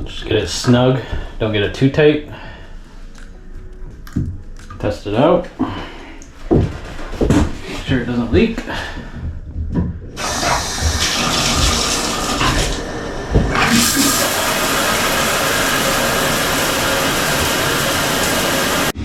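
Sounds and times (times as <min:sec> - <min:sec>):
shower water spraying: 0:10.2 - 0:19.0.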